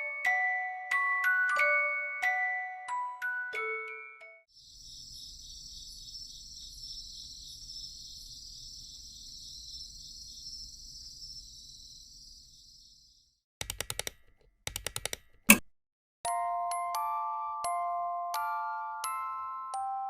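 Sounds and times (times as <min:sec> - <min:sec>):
high-pitched insect chorus: 0:04.5 - 0:13.4.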